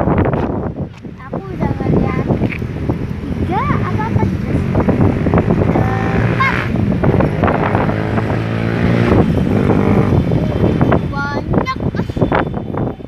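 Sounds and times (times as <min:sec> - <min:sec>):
motor vehicle engine passing: 0:01.9 - 0:11.1.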